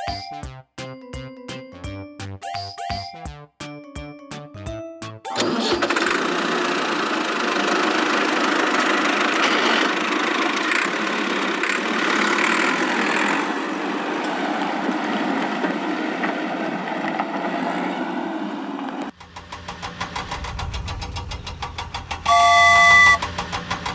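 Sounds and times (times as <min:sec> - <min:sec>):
vehicle engine running: 0:05.4 - 0:17.5, 0:19.1 - 0:23.9.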